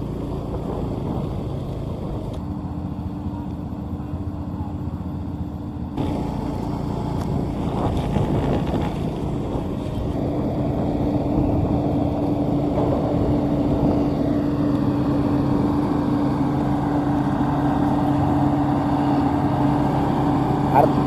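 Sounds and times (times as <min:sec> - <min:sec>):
combine harvesters droning: 0:00.0 - 0:21.0.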